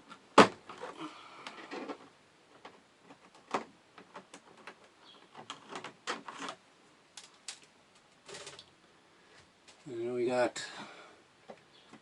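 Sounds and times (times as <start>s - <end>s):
plastic parts clicking and tapping: 0.0s - 6.6s, 7.2s - 8.7s.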